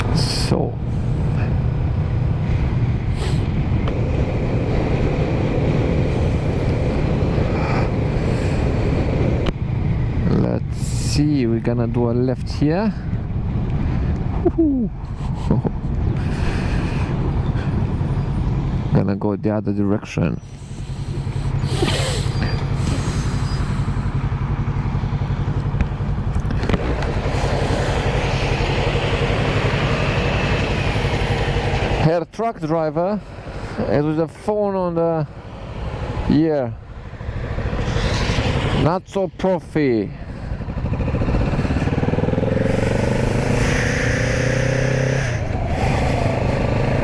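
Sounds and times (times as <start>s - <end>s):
motorcycle engine running: 0.0s - 11.0s, 20.4s - 32.1s, 35.3s - 39.2s, 39.8s - 47.0s
wind and road noise: 0.0s - 47.0s.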